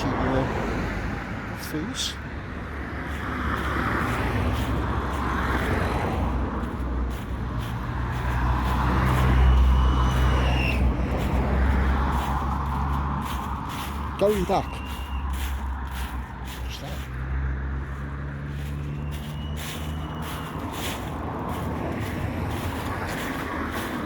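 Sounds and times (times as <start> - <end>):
vehicle engine hum: 0.0 - 24.0.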